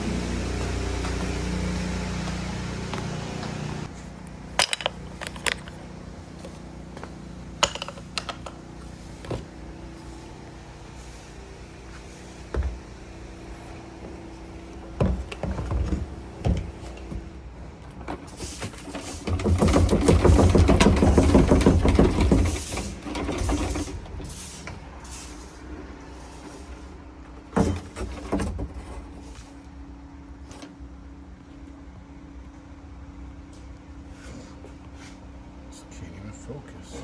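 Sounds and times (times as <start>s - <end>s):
vacuum cleaner running: 0.0s - 28.4s
background hum: 0.0s - 37.0s
clicks and knocks from handling: 4.6s - 5.8s, 7.6s - 8.6s.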